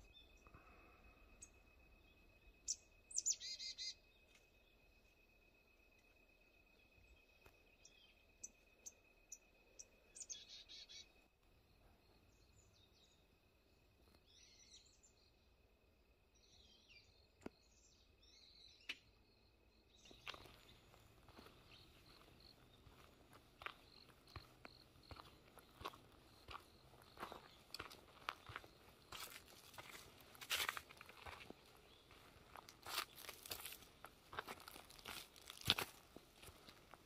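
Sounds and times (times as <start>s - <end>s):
small birds calling: 2.7s - 4.1s, 7.8s - 11.2s, 19.9s - 34.0s.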